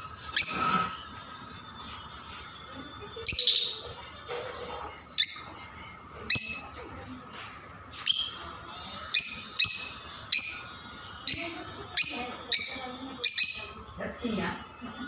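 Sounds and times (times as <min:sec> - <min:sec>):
parrots chirping shrilly: 0:00.0 - 0:00.9, 0:11.3 - 0:13.8.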